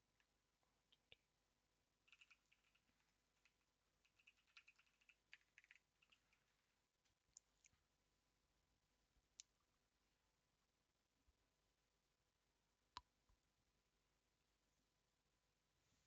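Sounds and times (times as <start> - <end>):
faint keyboard typing: 2.0 - 7.8.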